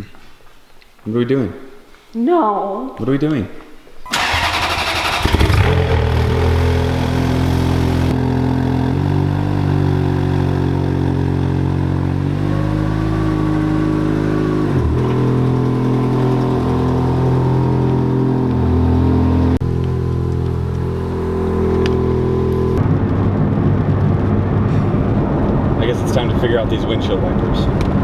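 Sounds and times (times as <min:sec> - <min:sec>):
car engine idling: 0:04.1 - 0:22.8.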